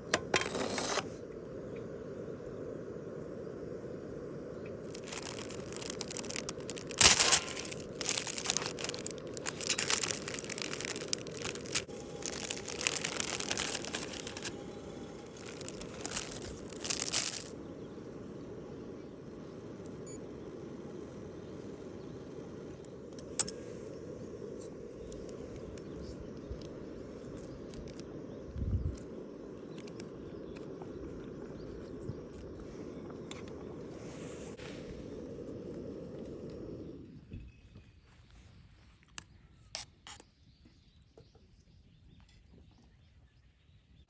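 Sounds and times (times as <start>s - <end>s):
crinkling rustling handling noise: 4.9s - 17.5s.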